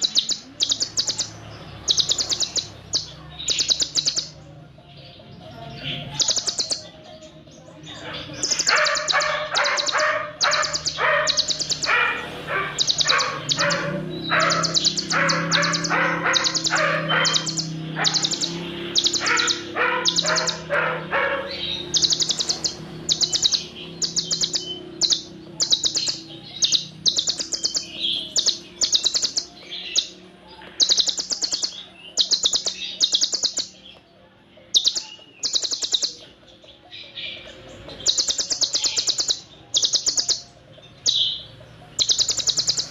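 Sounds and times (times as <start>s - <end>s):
lower chattering bird notes: 0.0s - 34.0s, 34.6s - 42.9s
bird high rapid trills: 8.3s - 30.2s, 30.8s - 33.8s, 34.7s - 36.2s, 38.0s - 40.4s, 41.0s - 42.9s.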